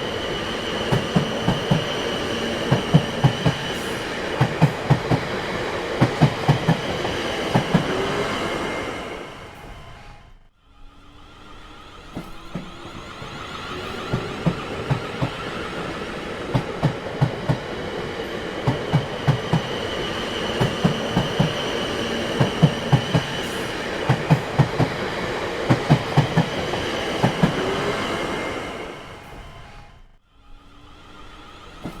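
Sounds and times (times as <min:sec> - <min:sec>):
steady train rumble: 0:00.0 - 0:32.0
train wheels knocking on rail joints: 0:00.7 - 0:08.0, 0:12.1 - 0:27.8.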